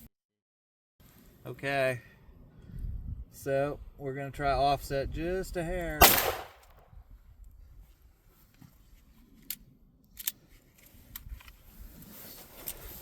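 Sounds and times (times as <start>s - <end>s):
pistol shot: 6.0s - 6.7s.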